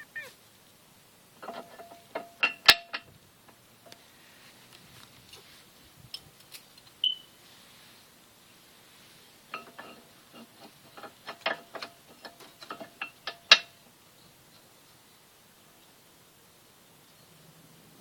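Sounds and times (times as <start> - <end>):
metal tools clinking: 1.4 - 3.1, 9.5 - 13.8.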